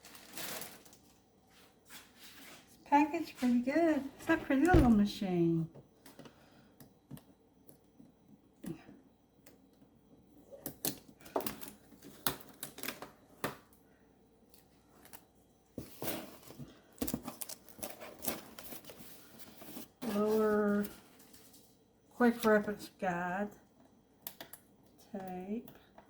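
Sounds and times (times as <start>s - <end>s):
packing material rustling and clicking: 0.0s - 1.3s, 15.0s - 21.7s.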